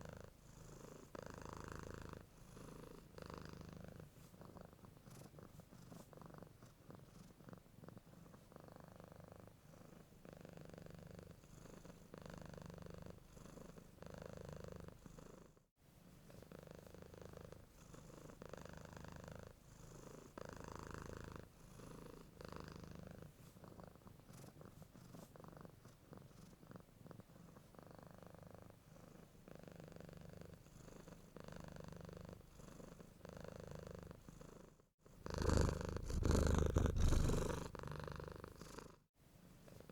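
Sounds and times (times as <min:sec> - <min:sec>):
cat purring: 0:00.0 - 0:15.6, 0:16.2 - 0:39.9.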